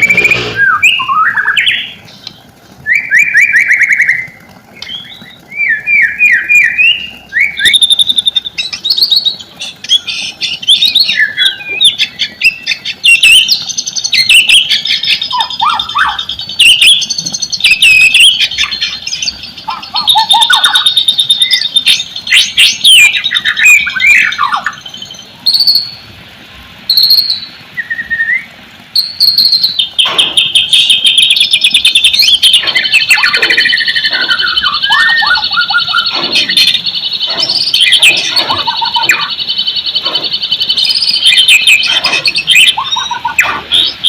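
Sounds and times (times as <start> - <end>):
songbird singing: 0.0 - 26.2, 26.8 - 44.0.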